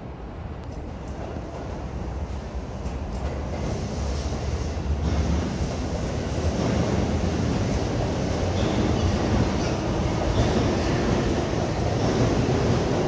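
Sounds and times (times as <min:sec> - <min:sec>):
train wheels rumbling on rails: 0:00.6 - 0:13.0.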